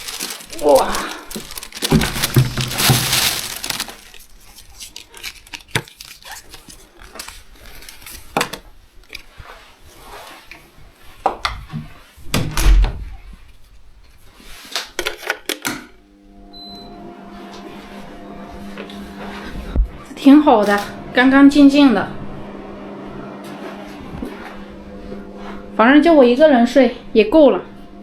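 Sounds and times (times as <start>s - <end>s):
objects knocking and clattering: 0.0s - 4.0s
rustling: 0.0s - 4.6s.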